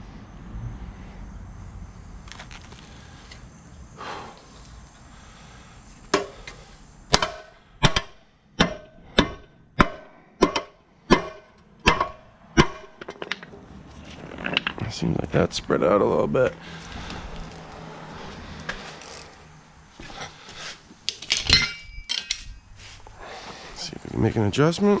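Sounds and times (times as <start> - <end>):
hammer striking metal: 7.1 - 12.9.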